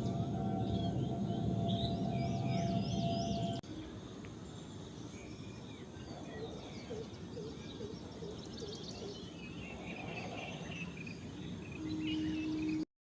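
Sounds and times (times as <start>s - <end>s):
low background rumble: 0.0s - 3.6s
wild birds chirping: 0.0s - 12.9s.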